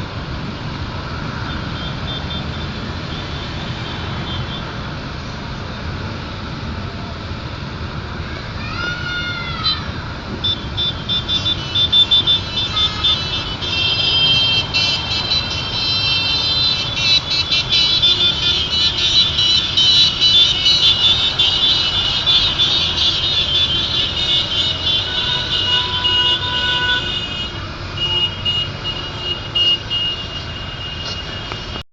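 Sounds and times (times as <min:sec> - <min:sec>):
motorcycle engines rumbling: 0:00.0 - 0:31.8
high-pitched horns: 0:10.4 - 0:31.8.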